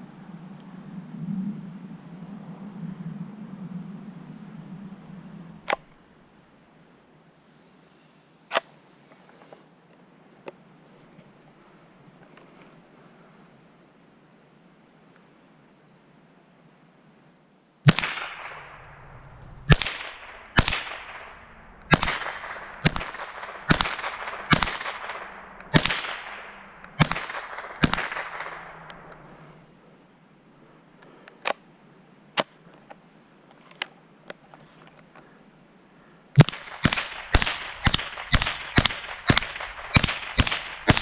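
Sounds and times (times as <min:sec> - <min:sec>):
rifle shots with echo: 0:17.9 - 0:29.2, 0:36.4 - 0:41.0.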